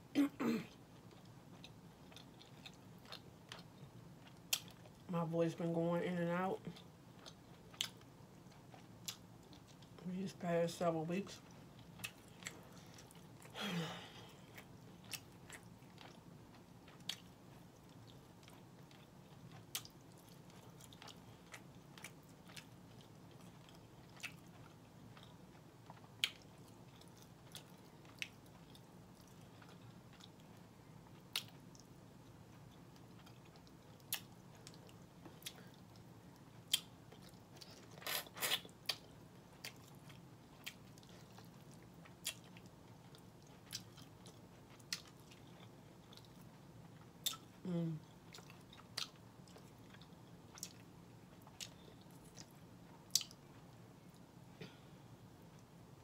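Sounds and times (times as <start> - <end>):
mouth clicks and smacks chewing: 36.4 - 47.6, 48.3 - 54.2.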